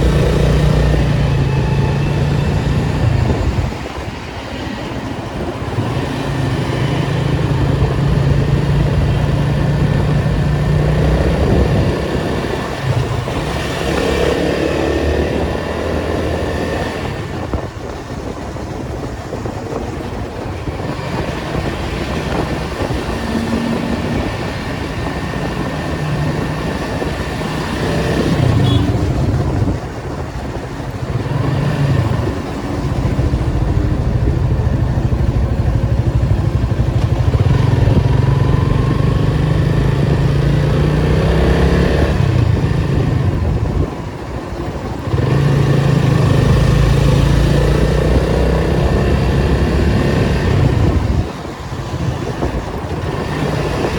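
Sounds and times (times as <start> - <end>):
car engine revving: 0.0 - 3.6, 31.2 - 43.6.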